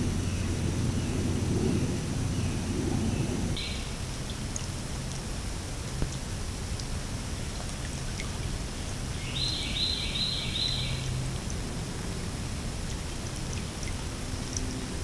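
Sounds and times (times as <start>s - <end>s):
water ticks: 3.6s - 15.0s.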